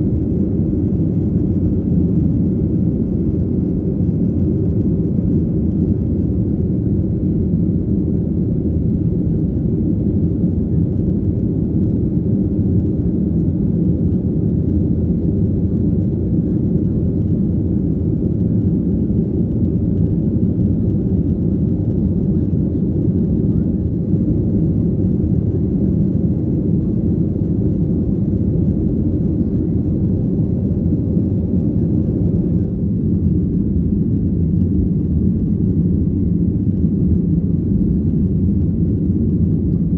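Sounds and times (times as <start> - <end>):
airflow in cabin: 0.0 - 39.9
jet engines rumbling: 0.0 - 39.9.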